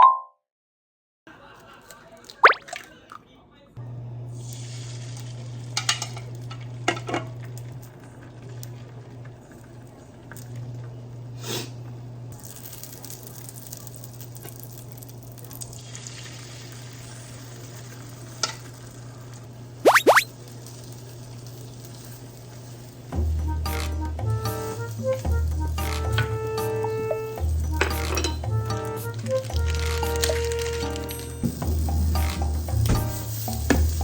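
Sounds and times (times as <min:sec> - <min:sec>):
food sizzling in a frying pan: 0:04.3 - 0:07.6, 0:12.4 - 0:19.8, 0:20.4 - 0:23.9, 0:31.4 - 0:34.0.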